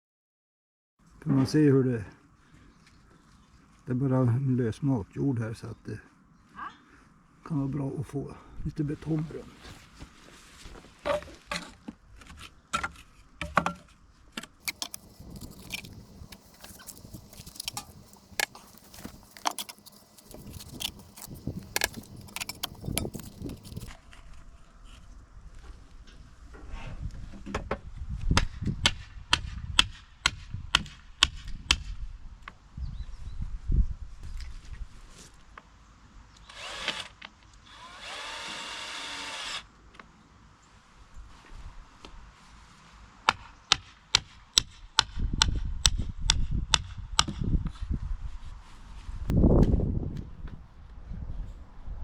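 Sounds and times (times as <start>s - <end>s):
spade chopping into soil: 14.6s - 23.9s.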